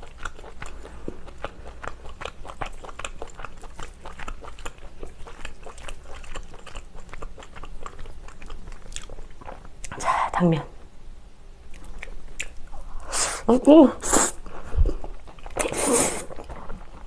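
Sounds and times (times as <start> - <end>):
wet chewing mouth clicks: 0.0 - 10.0, 11.7 - 12.9, 14.8 - 17.0.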